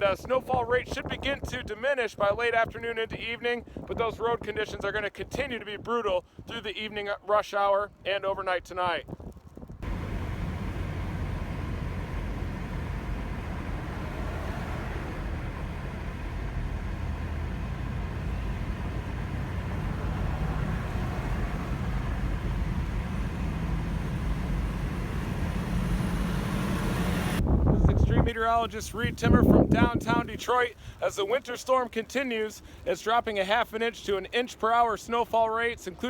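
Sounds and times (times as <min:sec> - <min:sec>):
road noise hiss: 0:09.8 - 0:27.4
traffic rumble: 0:09.8 - 0:28.3.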